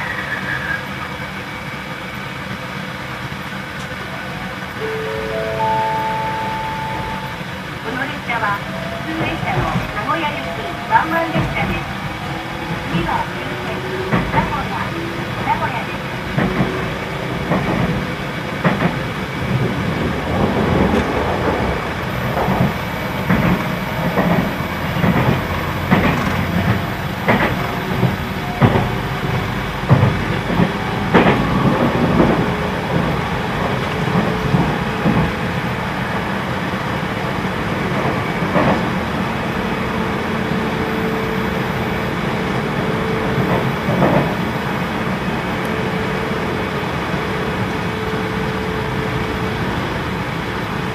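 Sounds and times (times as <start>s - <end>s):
train wheels rumbling on rail: 0.0s - 50.9s
wheels knocking over rail joints: 16.3s - 35.4s.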